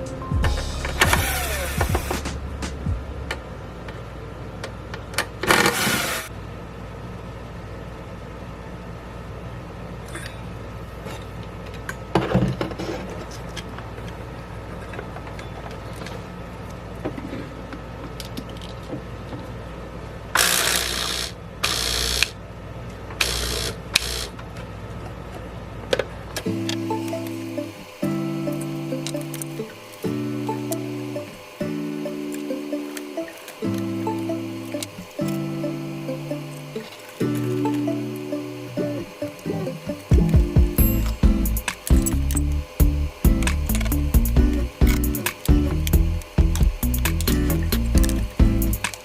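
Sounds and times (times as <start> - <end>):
steady low hum: 0.0 - 5.0, 19.6 - 49.0
short noisy whirring bursts: 0.8 - 2.9, 5.4 - 6.4, 20.3 - 22.4, 23.2 - 24.4, 26.4 - 49.0
clicks and clatter of tools: 18.0 - 19.5.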